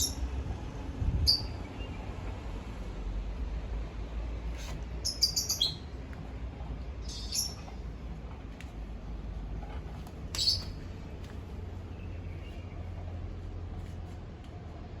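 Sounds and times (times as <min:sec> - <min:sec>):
small bird chirping: 0:01.2 - 0:01.9, 0:05.0 - 0:05.9, 0:07.0 - 0:07.7, 0:10.3 - 0:10.8.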